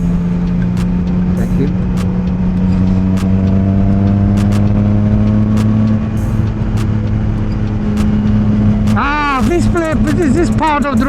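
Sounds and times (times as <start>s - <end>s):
motorcycle engine cruising: 0.0s - 11.0s
road noise: 0.0s - 11.0s.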